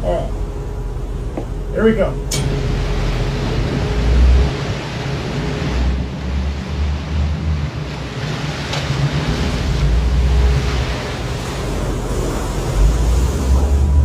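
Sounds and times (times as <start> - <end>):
boat engine running: 0.0 - 14.0
sea washing against hull: 0.0 - 14.0.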